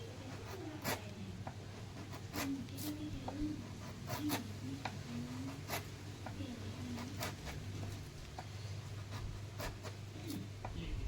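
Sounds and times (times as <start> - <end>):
tool scratching on wood: 5.3 - 10.5.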